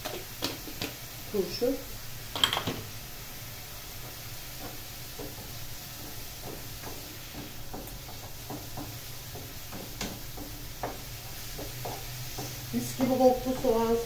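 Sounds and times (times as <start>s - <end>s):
faint sizzle: 0.0s - 14.0s
wooden spoon scraping a pan: 3.9s - 14.0s.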